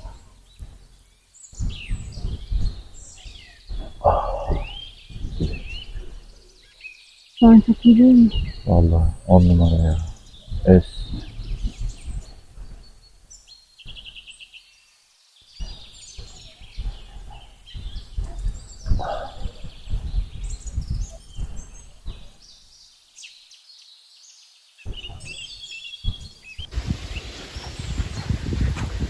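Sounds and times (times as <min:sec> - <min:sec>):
low rumbling: 0:00.0 - 0:06.7, 0:07.4 - 0:13.3, 0:26.6 - 0:29.0
small birds chirping: 0:00.0 - 0:29.0.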